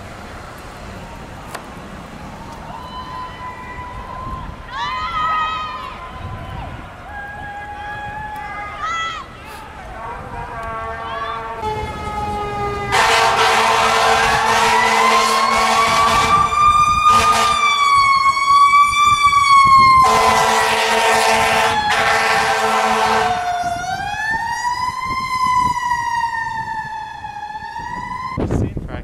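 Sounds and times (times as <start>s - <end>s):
emergency siren wailing: 0.8s - 28.5s
low steady horn blasts: 9.8s - 24.0s.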